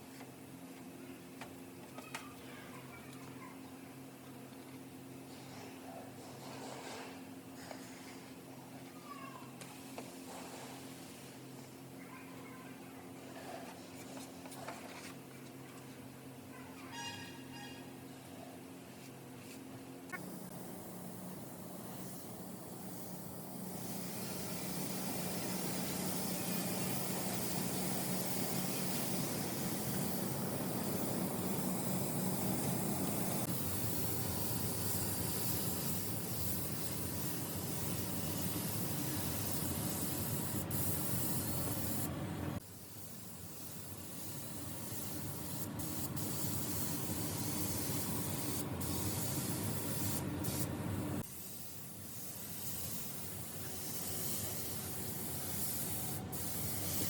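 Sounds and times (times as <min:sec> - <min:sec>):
paint spray gun hissing: 0:20.1 - 0:57.0.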